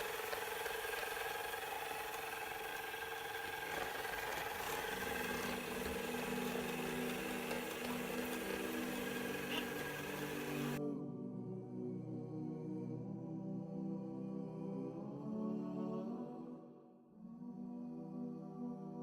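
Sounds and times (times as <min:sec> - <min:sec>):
robot vacuum cleaner whirring: 0:00.0 - 0:10.8.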